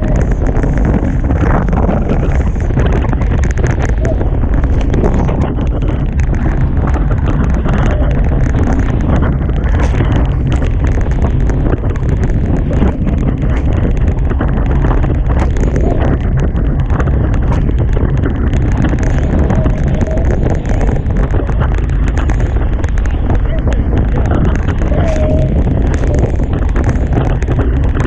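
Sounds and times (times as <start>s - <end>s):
water rushing along hulls: 0.0s - 28.0s
wind buffeting microphone: 0.0s - 28.0s.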